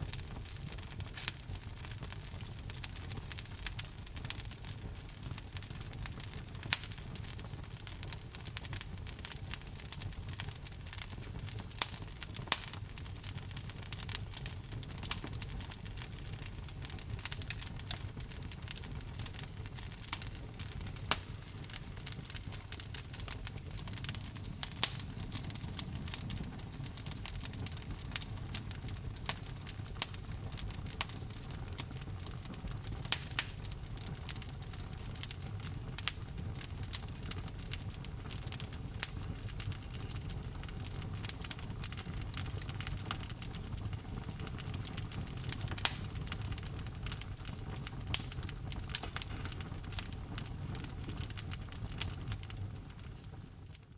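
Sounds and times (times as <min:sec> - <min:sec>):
fire crackling and popping: 0:00.0 - 0:53.9
low fire rumble: 0:00.0 - 0:53.9.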